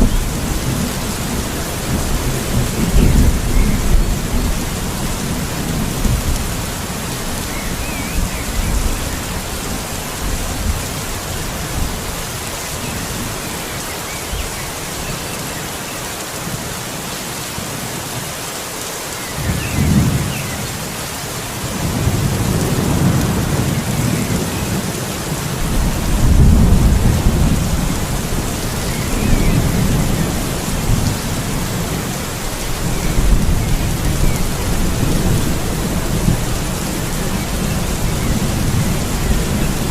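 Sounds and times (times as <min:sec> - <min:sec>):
rolling thunder: 0:00.0 - 0:11.0, 0:25.6 - 0:39.9
steady rain: 0:00.0 - 0:39.9.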